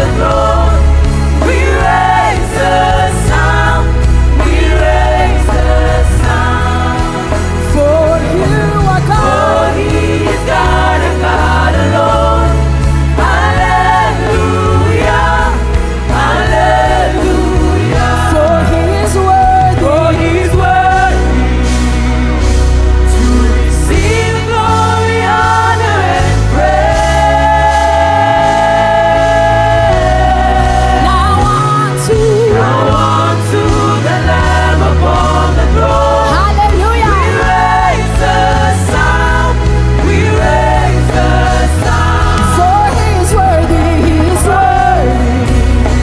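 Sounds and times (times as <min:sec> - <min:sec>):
band with steady bass line: 0:00.0 - 0:46.0
gospel singers: 0:00.0 - 0:46.0.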